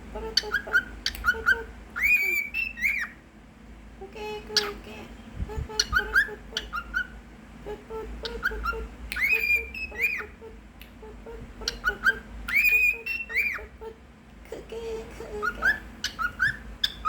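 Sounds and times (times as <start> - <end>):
cockatiel whistling: 0.4 - 3.2, 5.8 - 7.2, 8.2 - 10.4, 11.6 - 13.7, 15.4 - 17.0.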